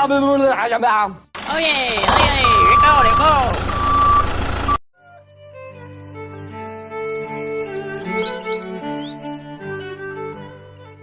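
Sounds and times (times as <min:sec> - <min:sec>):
bowed strings music: 0:05.2 - 0:11.0.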